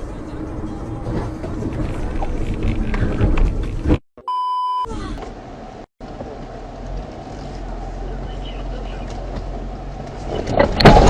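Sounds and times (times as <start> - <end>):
loud vehicle noise: 0.0 - 4.0, 4.9 - 11.0
vehicle and road rumble: 0.0 - 4.0, 4.8 - 11.0
short electronic beep: 4.2 - 4.9.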